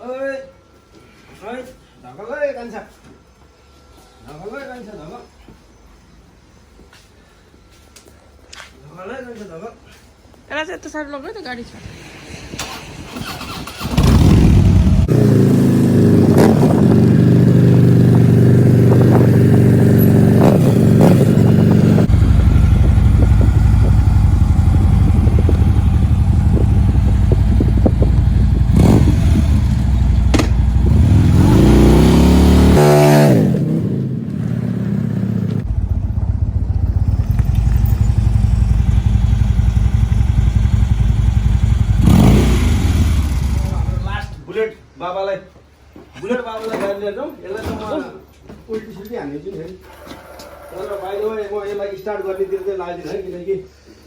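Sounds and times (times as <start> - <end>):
motorcycle engine revving: 12.6 - 44.4.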